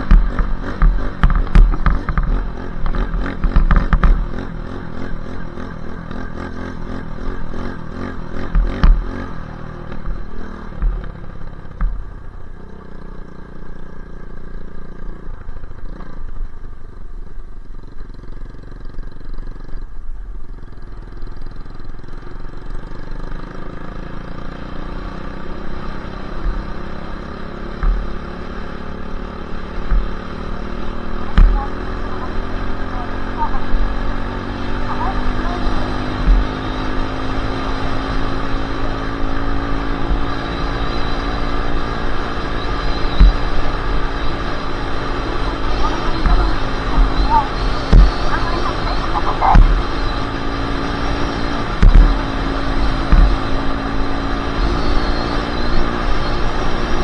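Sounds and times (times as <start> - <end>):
low thumps: 0.0 - 6.4, 7.1 - 12.6, 26.3 - 55.1
dirt bike engine revving: 0.0 - 16.5, 20.5 - 57.0.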